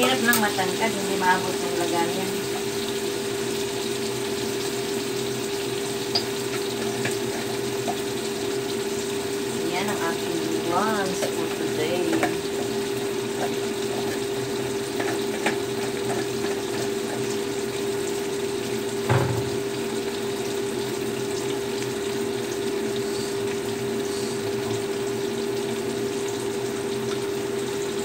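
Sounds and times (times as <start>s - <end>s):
food sizzling and bubbling in a wok: 0.0s - 28.0s
single knock: 19.1s - 19.6s.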